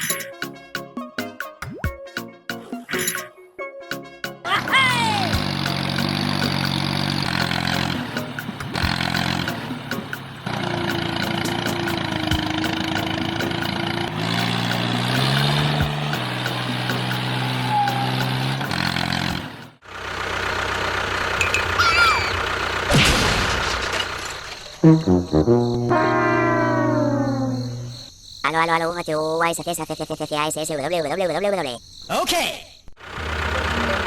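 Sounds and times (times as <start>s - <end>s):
vehicle engine running: 4.6s - 23.0s, 33.0s - 34.0s.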